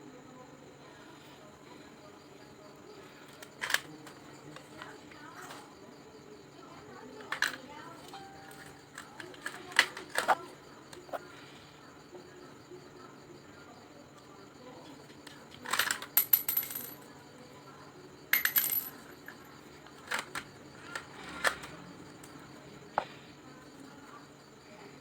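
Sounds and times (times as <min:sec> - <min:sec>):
plastic parts clicking and rattling: 0:03.3 - 0:05.7, 0:07.2 - 0:11.0, 0:15.1 - 0:17.0, 0:18.4 - 0:21.8.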